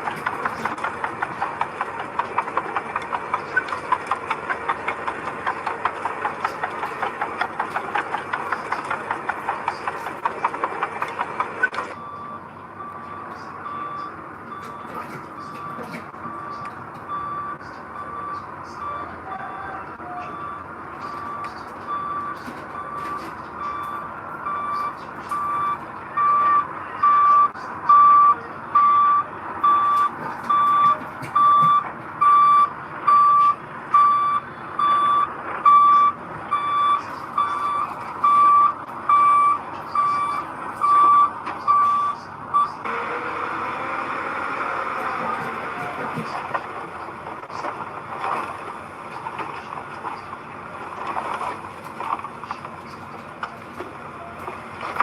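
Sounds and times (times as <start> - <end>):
diesel engine running: 0.0 - 55.0
reversing alarm beeping: 11.5 - 46.3.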